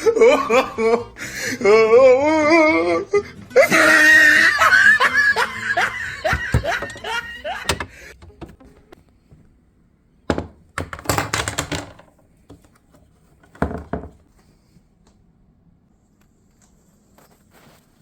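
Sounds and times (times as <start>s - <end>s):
refrigerator shelves rattling: 3.8s - 9.0s, 10.3s - 12.2s, 13.4s - 14.2s.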